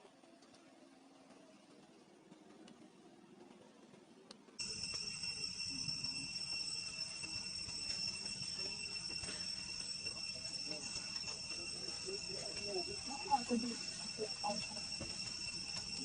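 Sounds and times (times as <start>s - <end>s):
insects droning: 4.6s - 16.0s.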